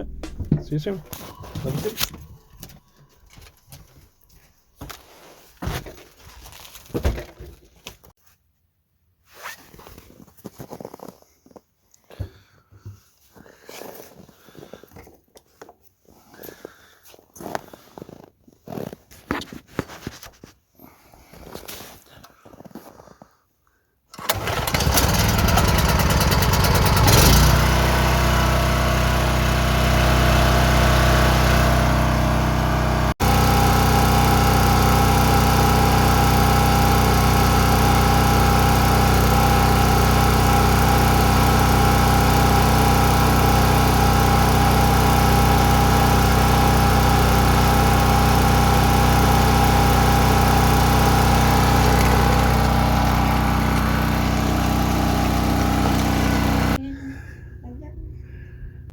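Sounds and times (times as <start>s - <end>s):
small engine starting and running: 0.0s - 4.2s, 24.1s - 56.8s.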